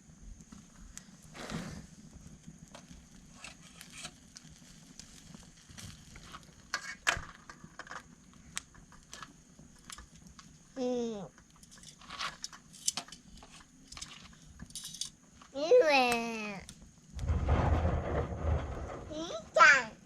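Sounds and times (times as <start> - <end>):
wood and tongs clacking: 11.6 - 15.2.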